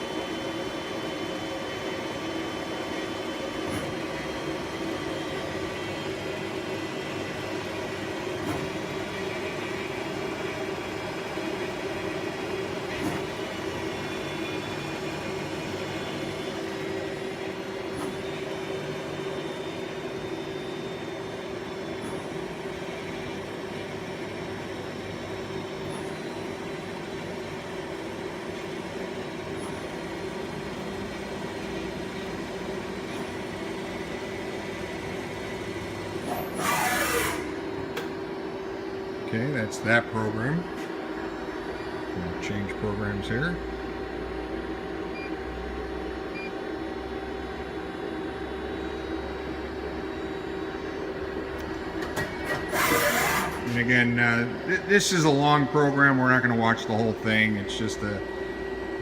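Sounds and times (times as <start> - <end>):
lathe machine hum: 0.0 - 59.0.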